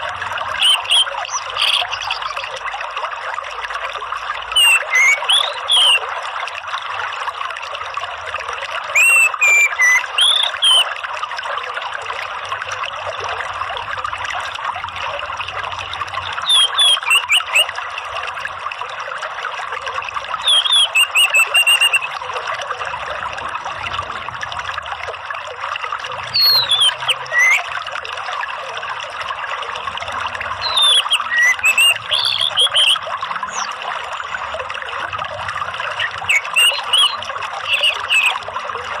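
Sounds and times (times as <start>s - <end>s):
trickling running water: 0.0s - 39.0s
thrush singing whistled phrases: 0.6s - 2.5s, 4.5s - 6.1s, 8.9s - 11.0s, 16.3s - 17.7s, 20.4s - 22.2s, 26.3s - 27.7s, 30.6s - 34.5s, 35.8s - 38.5s.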